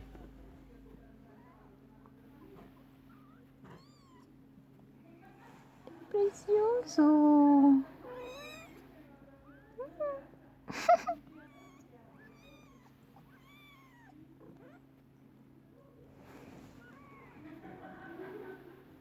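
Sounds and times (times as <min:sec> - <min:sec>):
steady low hum: 0:00.0 - 0:03.6
cat meowing: 0:03.1 - 0:04.3, 0:08.1 - 0:08.8, 0:11.4 - 0:14.8.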